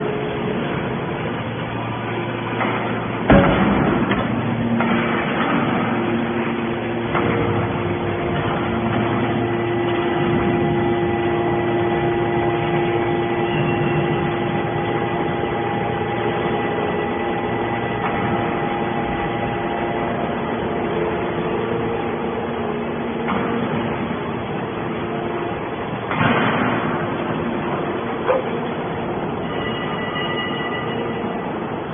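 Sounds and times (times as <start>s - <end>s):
machinery hum and whine: 0.0s - 31.9s.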